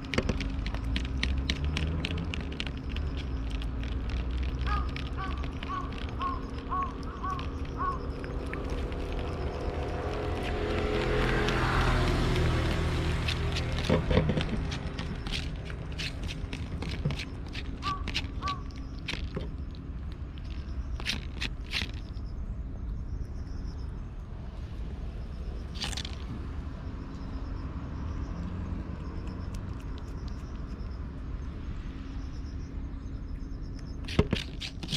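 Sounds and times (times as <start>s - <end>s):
cat crunching dry food: 0.0s - 22.2s, 25.8s - 26.3s, 29.2s - 30.8s, 34.0s - 34.9s
small clicks: 0.0s - 22.2s
low background rumble: 0.0s - 34.9s
low traffic hum: 0.0s - 34.9s
vehicle passing by: 0.5s - 18.0s, 24.5s - 30.5s.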